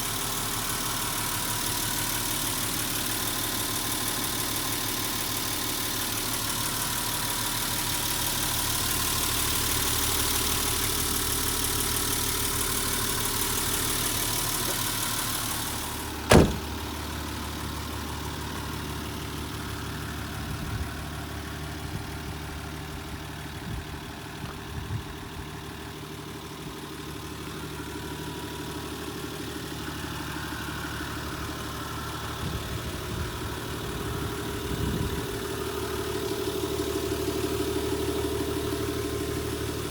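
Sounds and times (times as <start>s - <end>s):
diesel engine idling: 0.0s - 39.9s
light knocks: 16.3s - 16.7s
sharp thump: 16.3s - 16.8s.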